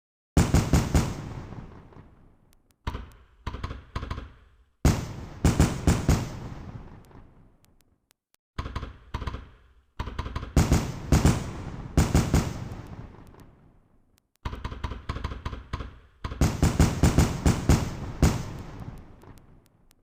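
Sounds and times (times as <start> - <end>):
fireworks bangs and crackles: 0.4 - 2.6, 4.8 - 7.7, 10.6 - 13.9, 16.4 - 20.0.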